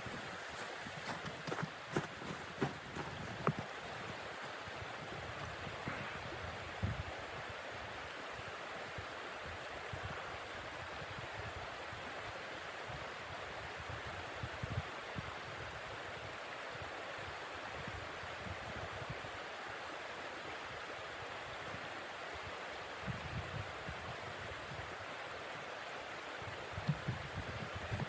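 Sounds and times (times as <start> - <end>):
rushing blizzard wind: 0.0 - 7.5
wind buffeting microphone: 26.7 - 28.0.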